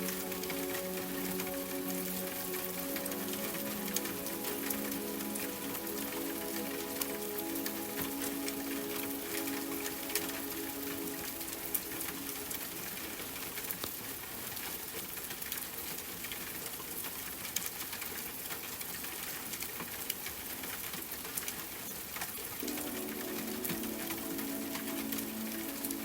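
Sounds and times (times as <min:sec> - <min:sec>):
soft music: 0:00.0 - 0:13.7, 0:22.6 - 0:26.0
steady rain hiss: 0:00.0 - 0:26.0.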